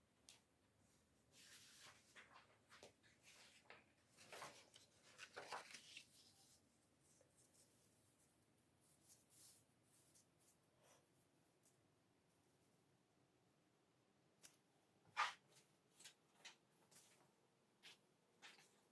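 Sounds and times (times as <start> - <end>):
faint rustling and scratching: 0.9 - 12.9.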